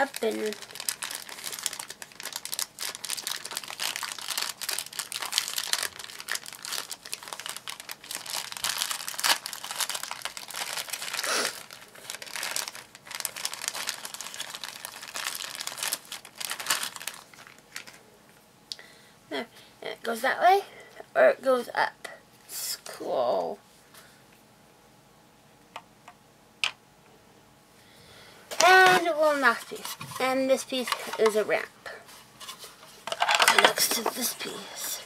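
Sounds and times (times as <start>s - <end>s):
packaging crinkling and tearing: 0.0s - 18.0s, 28.6s - 31.4s, 32.4s - 34.6s.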